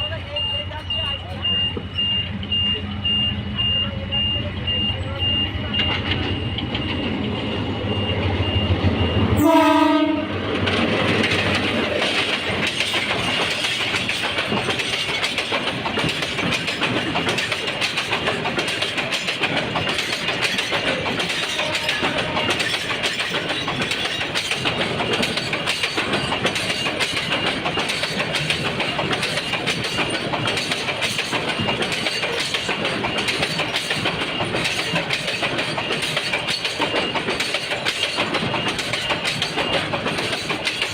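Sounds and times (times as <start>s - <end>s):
train wagons rumbling on rails: 0.0s - 40.9s
locomotive horn blast: 9.4s - 10.4s, 21.5s - 22.7s.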